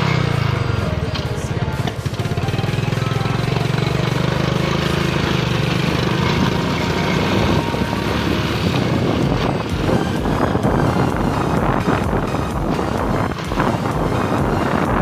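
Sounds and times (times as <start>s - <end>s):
heavy truck engine running: 0.0s - 15.0s
road noise: 0.0s - 15.0s
wind noise: 5.8s - 15.0s.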